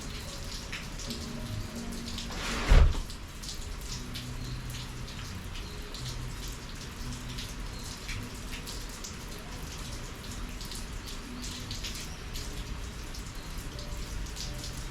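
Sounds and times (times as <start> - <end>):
raindrops ticking: 0.0 - 2.4, 3.0 - 14.9
rain falling: 0.0 - 14.9
loud low thump with whoosh: 2.6 - 3.1.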